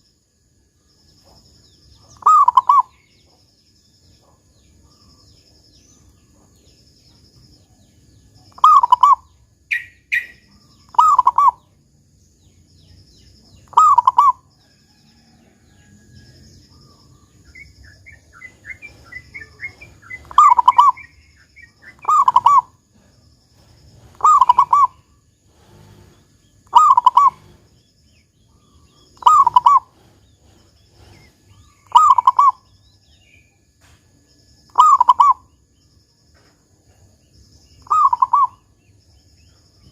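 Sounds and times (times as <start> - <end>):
small bird chirping: 0.0 - 39.9
dove cooing: 2.0 - 3.0, 8.5 - 11.7, 13.6 - 14.5, 16.8 - 27.7, 28.5 - 32.7, 34.7 - 35.5, 37.8 - 38.7.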